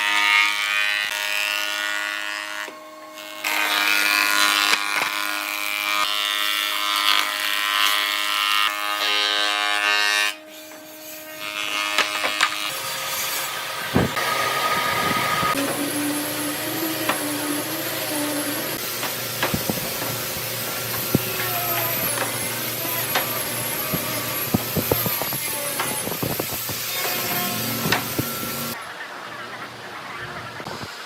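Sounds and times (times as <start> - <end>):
power tool motor whining: 13.5 - 28.8.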